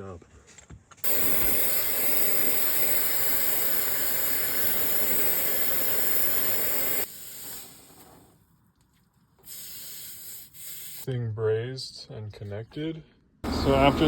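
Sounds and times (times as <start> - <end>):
gas hissing from a nozzle: 1.0 - 8.4, 9.4 - 11.1.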